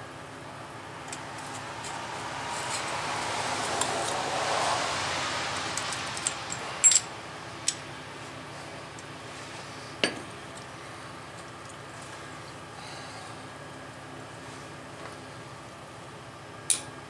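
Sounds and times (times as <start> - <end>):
rushing noise: 0.5 - 8.5.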